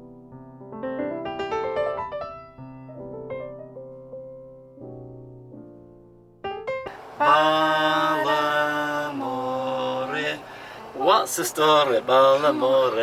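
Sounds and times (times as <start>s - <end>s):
gentle piano music: 0.0s - 7.4s.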